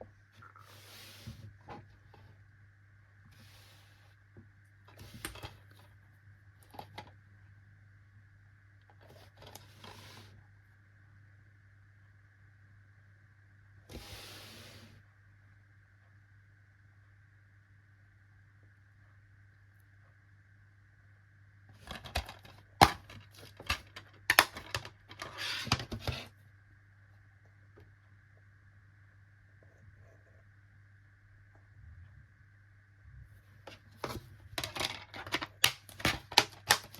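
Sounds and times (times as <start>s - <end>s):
low electrical hum: 0.0s - 36.9s
plastic case clicks and rustles: 21.8s - 26.3s, 33.7s - 36.9s.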